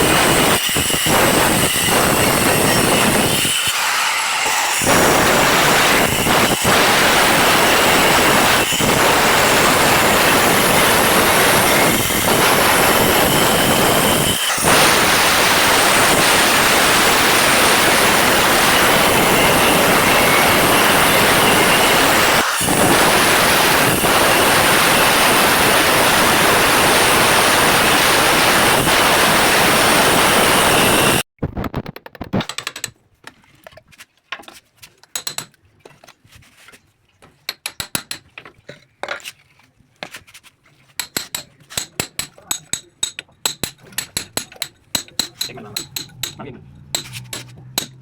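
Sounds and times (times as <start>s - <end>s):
power tool running: 0.0s - 31.3s.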